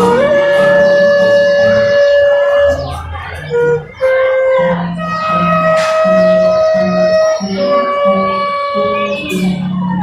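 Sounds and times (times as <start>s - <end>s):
low repeating bass note: 0.0s - 7.2s
held guitar melody note: 0.0s - 10.0s.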